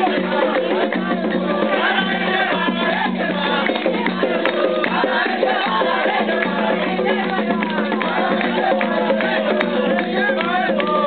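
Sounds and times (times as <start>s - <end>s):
group of voices singing: 0.0s - 11.0s
hand drums beating: 0.0s - 11.0s.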